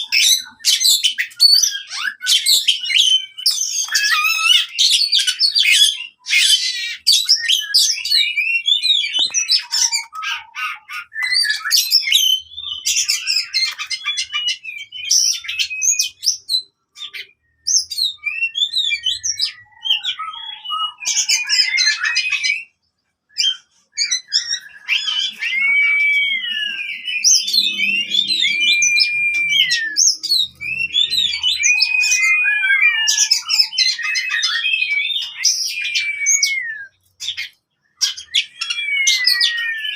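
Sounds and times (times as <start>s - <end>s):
bird chirps and trills: 0.0s - 39.9s
long level whistles: 24.0s - 37.0s.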